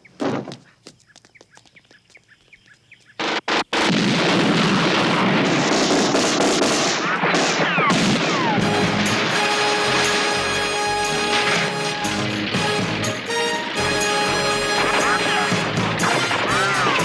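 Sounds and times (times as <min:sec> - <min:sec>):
automatic gunfire: 0:03.8 - 0:08.6
falling whistles: 0:07.6 - 0:17.0
music tones: 0:08.6 - 0:17.0.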